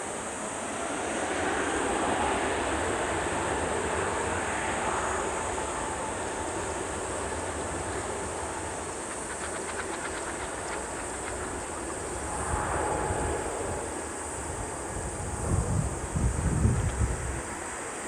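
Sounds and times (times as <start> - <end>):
wind buffeting microphone: 8.6 - 17.9.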